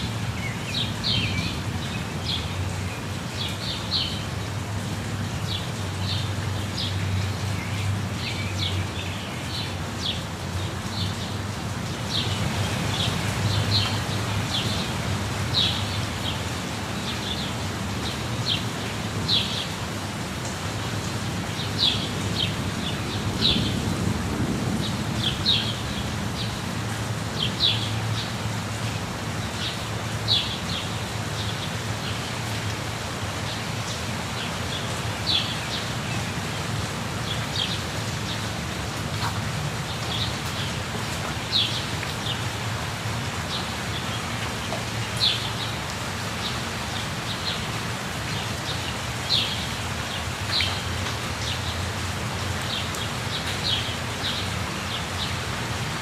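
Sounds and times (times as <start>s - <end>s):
waterfall rushing: 0.0s - 56.0s
birds chirping: 5.3s - 19.8s.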